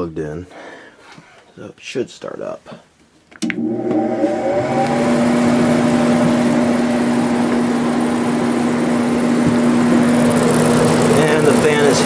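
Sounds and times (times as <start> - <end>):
air conditioner fan humming: 3.5 - 12.0.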